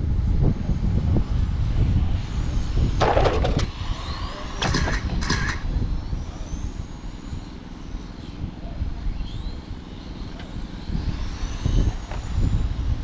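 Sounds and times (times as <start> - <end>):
toy car motors whining: 3.0 - 8.4, 9.0 - 13.0.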